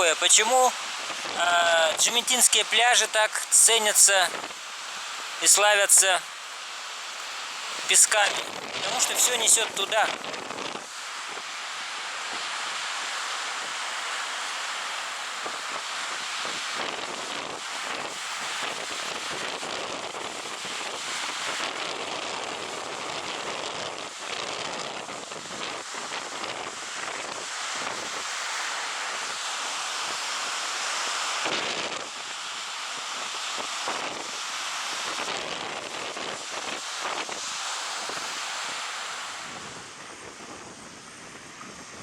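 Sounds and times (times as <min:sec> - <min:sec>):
sea surf rushing onto beach: 0:00.0 - 0:42.0
wind buffeting microphone: 0:07.6 - 0:11.5, 0:15.4 - 0:29.4, 0:31.4 - 0:38.8, 0:39.4 - 0:42.0.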